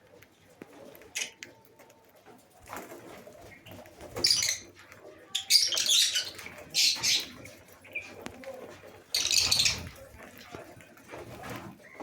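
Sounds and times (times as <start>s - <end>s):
lovebirds chattering shrilly: 3.4s - 8.2s, 9.0s - 10.1s.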